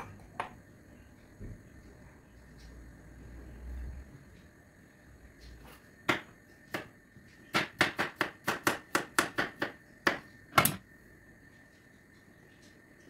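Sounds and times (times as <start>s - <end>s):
knife chopping on cutting board: 7.5s - 10.8s.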